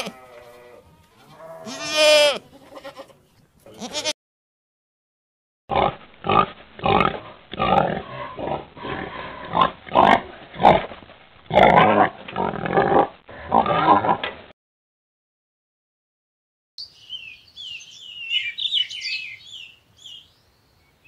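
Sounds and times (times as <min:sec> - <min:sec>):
pig grunting and oinking: 0:05.7 - 0:14.3.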